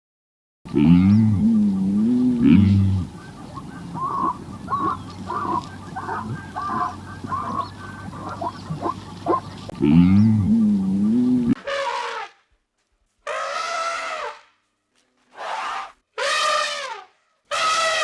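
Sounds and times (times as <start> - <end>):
low wavering moan: 0.7 - 11.6
short honking animal calls: 0.7 - 12.2.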